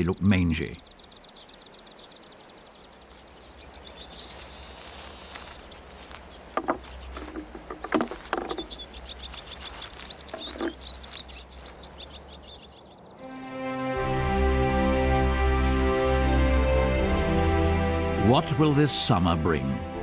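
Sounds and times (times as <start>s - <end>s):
high chirps: 0.0s - 6.2s.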